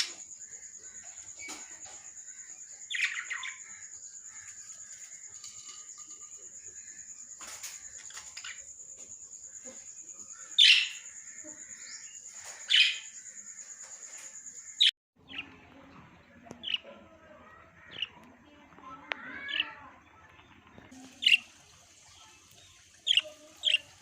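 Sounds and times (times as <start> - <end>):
small parrots chirping: 2.8 - 3.7, 9.6 - 13.2.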